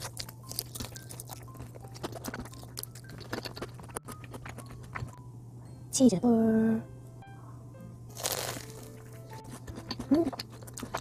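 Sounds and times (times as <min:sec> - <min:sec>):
crunchy chewing: 0:00.0 - 0:05.2, 0:08.1 - 0:11.0
steady low hum: 0:00.0 - 0:11.0.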